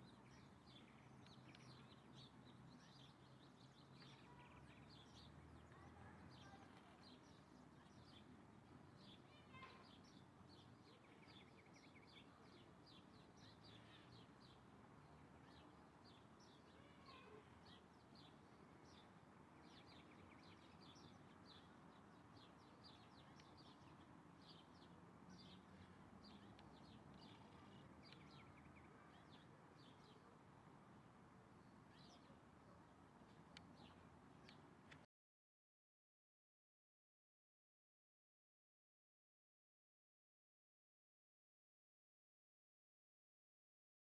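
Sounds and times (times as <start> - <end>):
faint birdsong chirps: 0.0 - 30.4, 31.5 - 35.0.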